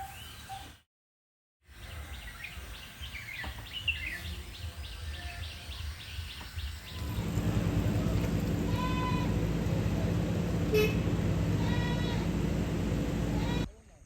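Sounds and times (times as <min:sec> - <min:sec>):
birds chirping: 0:01.8 - 0:13.7
loud low steady drone: 0:06.9 - 0:13.7
low rumble: 0:06.9 - 0:13.7.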